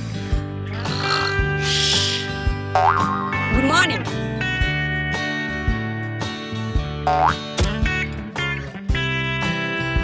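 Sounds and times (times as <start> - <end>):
cartoon music with steady beat: 3.4 - 4.1.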